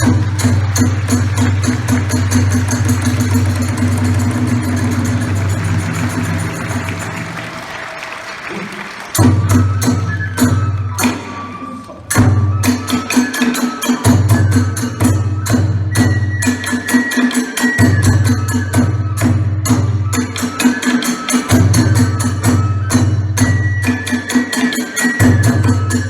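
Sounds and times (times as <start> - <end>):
rapid drum strikes: 0.0 - 7.4
high flute: 9.2 - 26.0.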